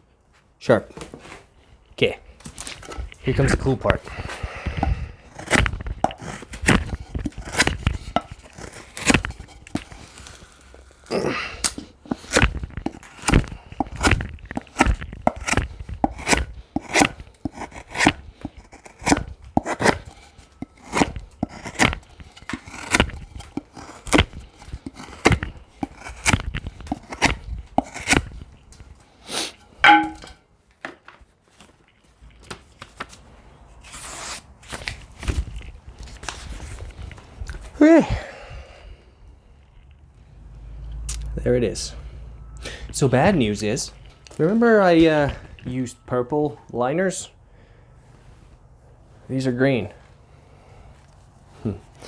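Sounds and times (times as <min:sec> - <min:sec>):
knife chopping hard: 0:04.1 - 0:10.1, 0:11.6 - 0:28.3, 0:29.8 - 0:30.3.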